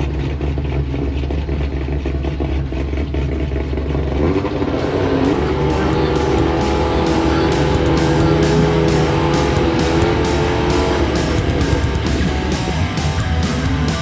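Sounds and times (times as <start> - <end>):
car engine rumbling: 0.0 - 14.0
engine revving: 4.1 - 14.0
background music: 4.8 - 14.0.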